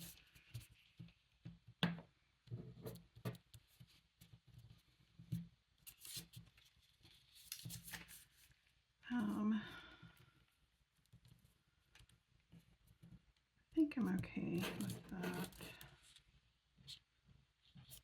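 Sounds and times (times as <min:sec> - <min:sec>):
paper rustling: 0:05.8 - 0:08.6, 0:14.5 - 0:16.2.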